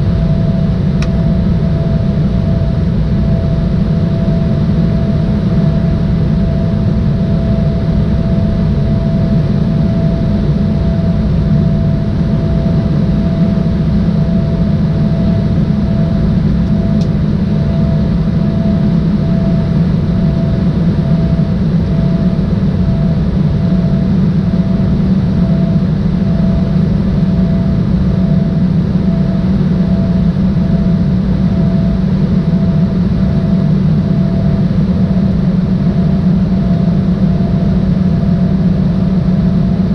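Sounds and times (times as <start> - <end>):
jet engines and airflow rushing: 0.0 - 39.9
small click: 1.0 - 1.2.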